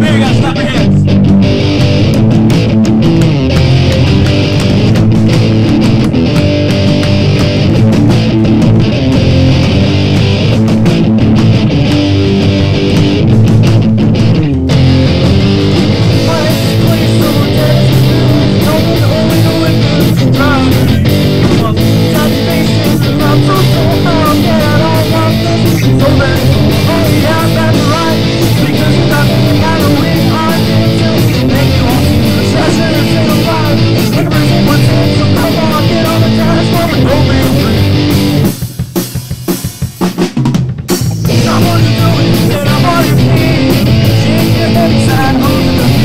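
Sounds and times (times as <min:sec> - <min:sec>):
rock band playing live: 0:00.0 - 0:46.0.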